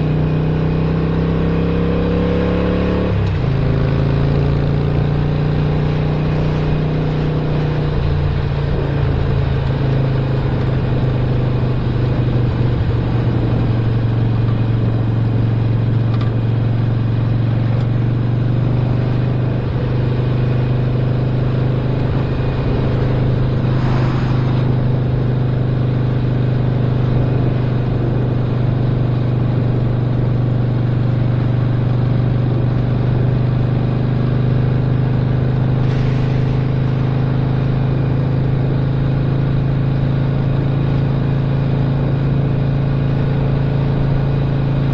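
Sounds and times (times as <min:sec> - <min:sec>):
motorcycle engine running: 0:00.0 - 0:44.9
short rush of noise: 0:22.6 - 0:25.3, 0:35.8 - 0:37.3.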